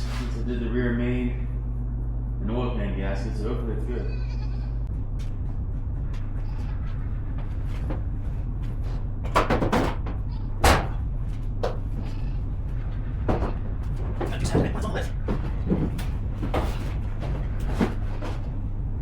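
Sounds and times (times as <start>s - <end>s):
truck engine rough rumble: 4.7s - 19.0s.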